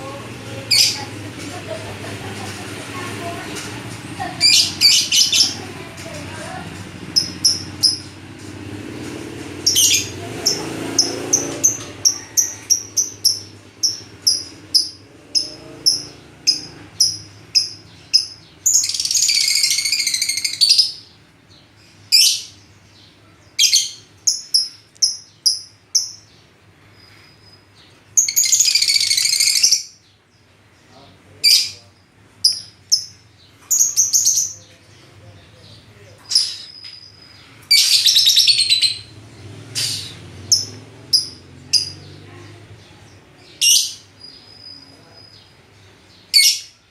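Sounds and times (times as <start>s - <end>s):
birds chirping: 0.0s - 46.9s
bird harsh screech: 39.7s - 40.2s.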